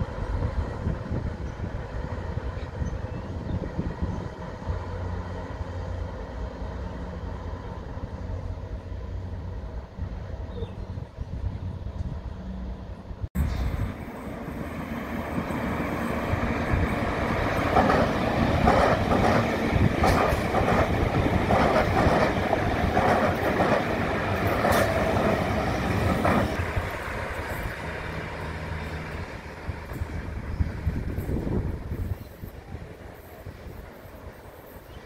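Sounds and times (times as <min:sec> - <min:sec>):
train passing rumble: 0:00.0 - 0:35.0
wheels clicking over rail joints: 0:16.7 - 0:32.6.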